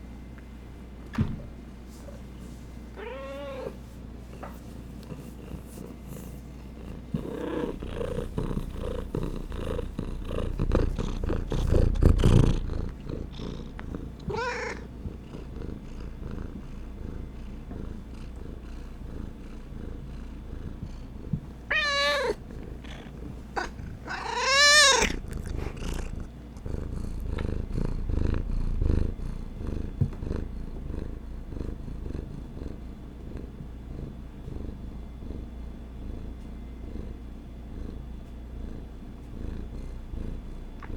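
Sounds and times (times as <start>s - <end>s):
cat purring: 2.0s - 40.9s
cat meowing: 3.0s - 3.8s, 14.3s - 14.8s, 21.7s - 22.4s, 23.6s - 25.2s.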